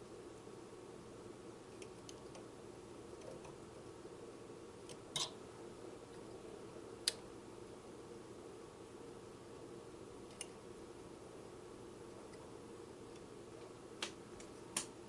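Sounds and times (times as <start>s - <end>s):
low steady hiss: 0.0s - 15.0s
faint clicks from handling fan motor: 1.7s - 2.5s, 3.1s - 3.7s, 4.8s - 5.4s, 7.0s - 7.3s, 10.2s - 10.6s, 12.2s - 15.0s.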